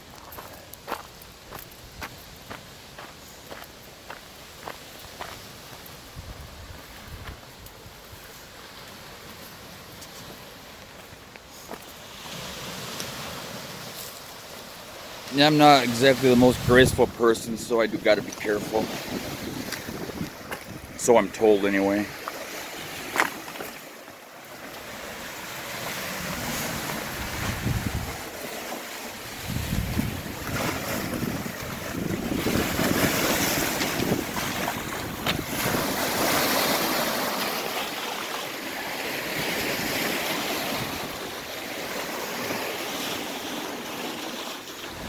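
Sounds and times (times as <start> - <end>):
waves washing against rocks: 2.0 - 45.0
wind gusting on microphone: 6.0 - 8.3, 15.8 - 21.5, 25.8 - 28.5, 29.2 - 36.9.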